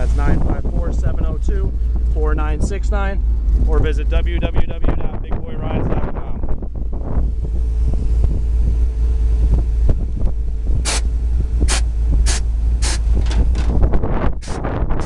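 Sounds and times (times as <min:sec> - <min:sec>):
wind buffeting microphone: 0:00.0 - 0:15.0
short hissing bursts: 0:11.7 - 0:13.1.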